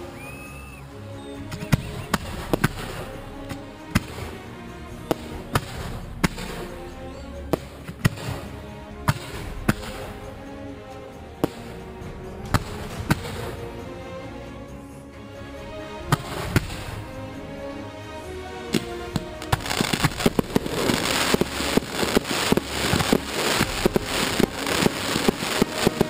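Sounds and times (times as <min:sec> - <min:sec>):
music playing: 0:00.0 - 0:26.0
fireworks bangs: 0:18.8 - 0:26.0.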